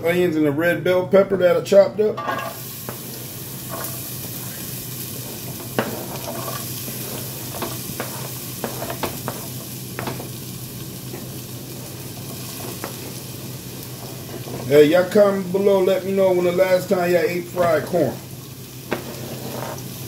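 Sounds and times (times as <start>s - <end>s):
vegetables sizzling in oil: 2.3s - 20.0s
wooden spoon tapping and scraping: 5.6s - 10.3s.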